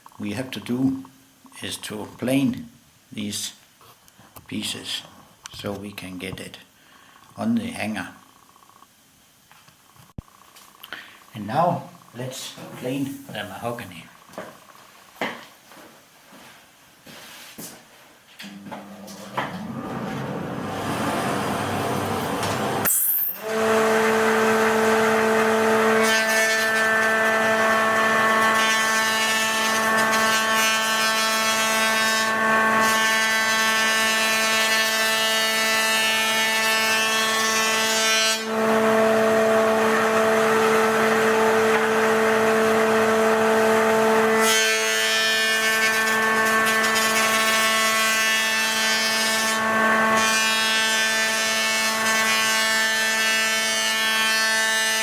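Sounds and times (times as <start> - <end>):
electric wood planer whining: 18.5 - 55.0.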